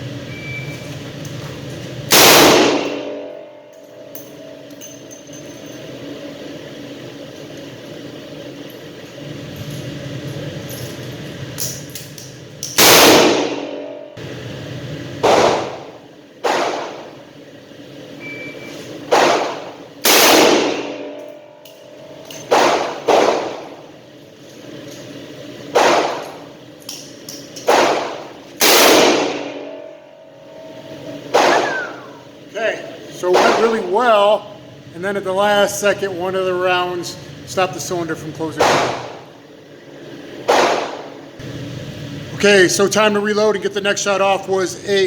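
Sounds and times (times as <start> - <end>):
revolver shots echoing: 2.1 - 3.3, 15.2 - 17.2, 19.1 - 21.2, 22.5 - 23.8, 25.7 - 26.5, 27.6 - 29.9, 31.3 - 32.2, 38.5 - 39.3, 40.4 - 41.3.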